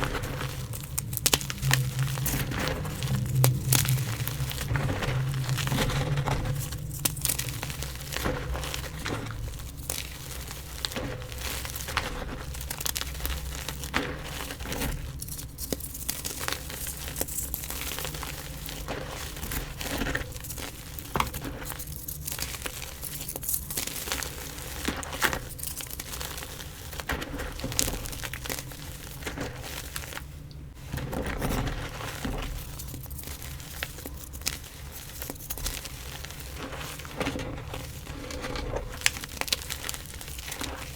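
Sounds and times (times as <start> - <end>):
chalk crunching and crackling: 0.0 - 40.9.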